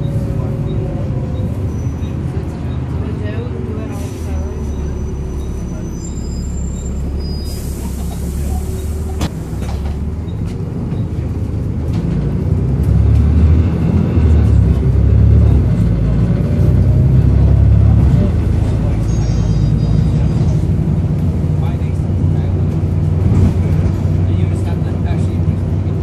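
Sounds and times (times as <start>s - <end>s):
bus diesel engine droning: 0.0s - 26.0s
air hissing: 7.4s - 9.2s.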